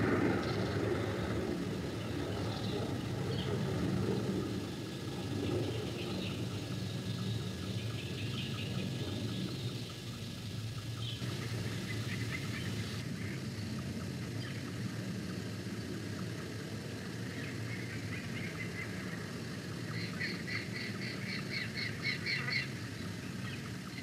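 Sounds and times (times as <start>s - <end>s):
low rumble: 0.0s - 10.7s
bird chirping rapidly: 2.0s - 13.0s.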